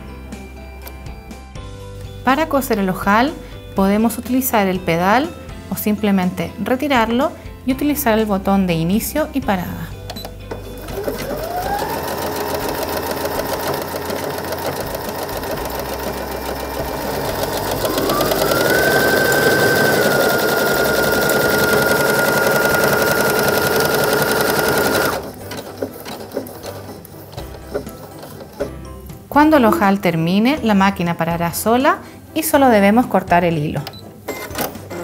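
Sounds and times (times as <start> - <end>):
sewing machine running: 10.6 - 28.8.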